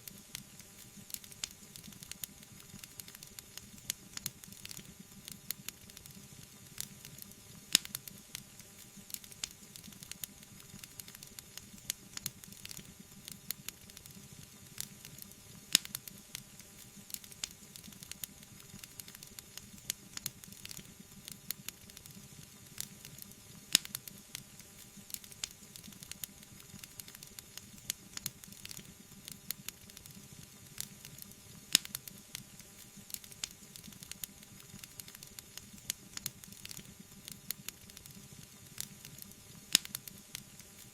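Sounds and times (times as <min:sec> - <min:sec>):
wood fire crackling: 0:00.0 - 0:40.9
fire pops: 0:30.8 - 0:38.2, 0:38.8 - 0:40.9.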